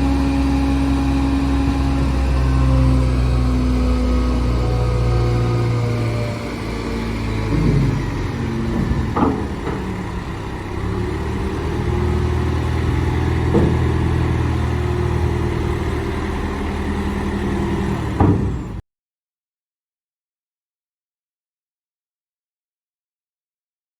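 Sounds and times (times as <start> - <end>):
truck diesel engine running: 0.0 - 18.8
short clunks: 7.5 - 10.1, 13.4 - 14.1, 18.1 - 18.8.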